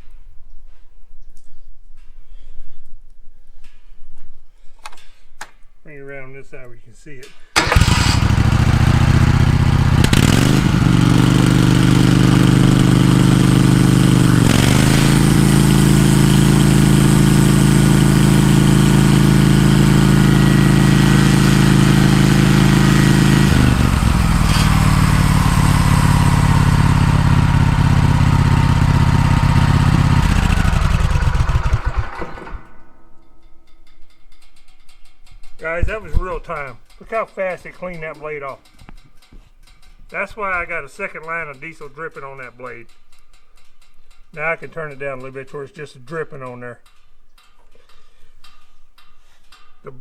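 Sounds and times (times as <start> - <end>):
band sawmill engine running: 7.6 - 33.2.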